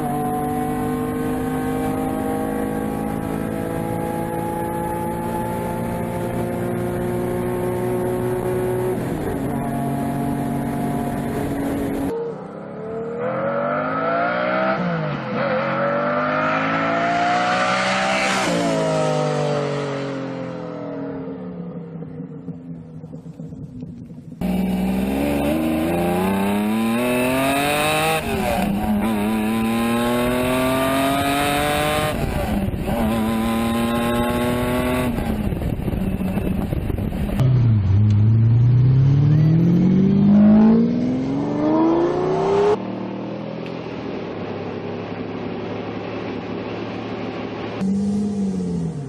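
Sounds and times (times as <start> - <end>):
sports car engine accelerating: 0.0 - 49.0.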